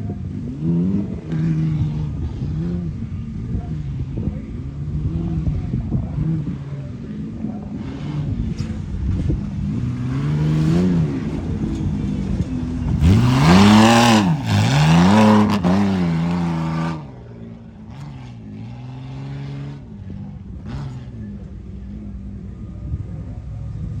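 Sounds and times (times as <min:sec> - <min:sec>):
truck engine revving hard: 0:07.7 - 0:21.4.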